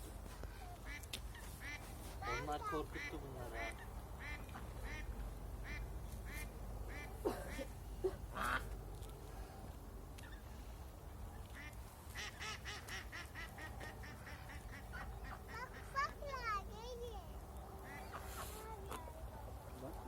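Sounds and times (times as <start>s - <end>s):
ducks quacking: 0.8s - 7.7s, 8.3s - 8.7s, 11.4s - 16.3s, 17.8s - 18.5s.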